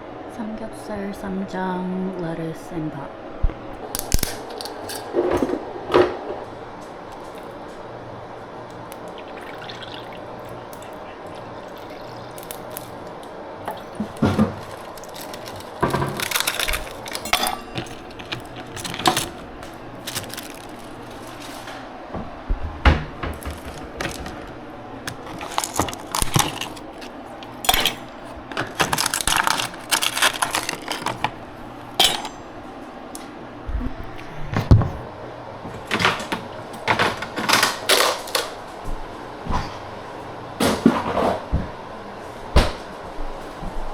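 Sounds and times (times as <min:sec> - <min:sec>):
steady low hum: 0:00.0 - 0:37.4
dishes and utensils clinking: 0:13.7 - 0:21.7, 0:23.2 - 0:32.6.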